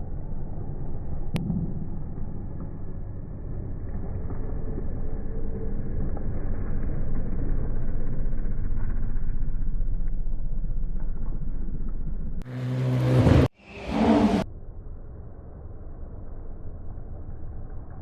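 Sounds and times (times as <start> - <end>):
road rumble: 0.0 - 18.0
rally car engine revving: 12.4 - 14.4.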